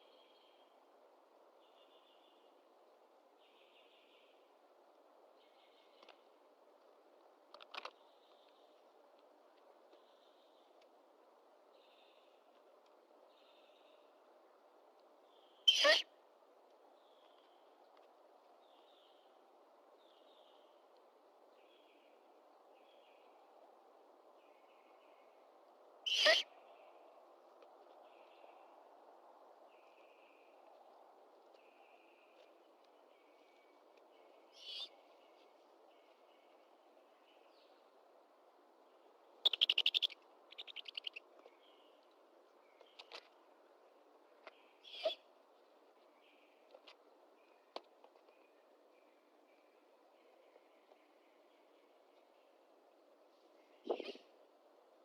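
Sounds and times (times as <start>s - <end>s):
faint outdoor hiss: 0.0s - 55.0s
bird calls: 26.1s - 26.5s, 34.6s - 35.0s, 39.4s - 41.2s, 44.8s - 45.2s, 53.8s - 54.3s
bird chattering in rapid pulses: 39.4s - 41.2s.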